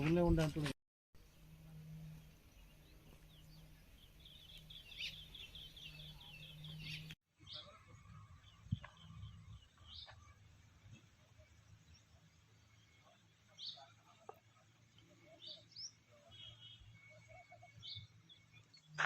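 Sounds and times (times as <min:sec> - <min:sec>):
low steady hum: 0:01.2 - 0:07.2
small birds chirping: 0:02.0 - 0:19.0.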